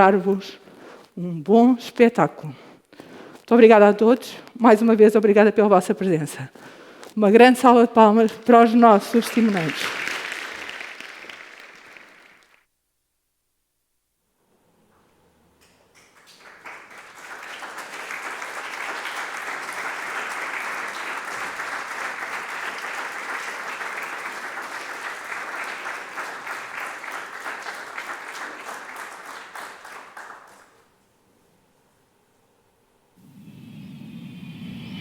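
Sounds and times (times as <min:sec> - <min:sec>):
audience applause: 0:08.8 - 0:12.6, 0:16.1 - 0:30.8.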